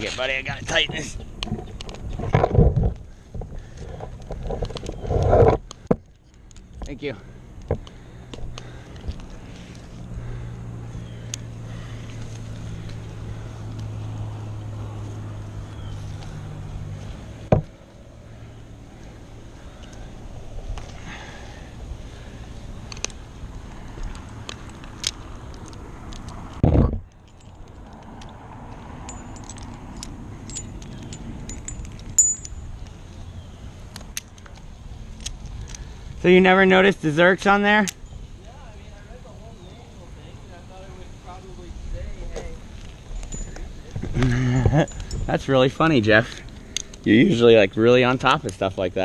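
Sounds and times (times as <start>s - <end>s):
metal hardware clinking: 27.1s - 33.0s.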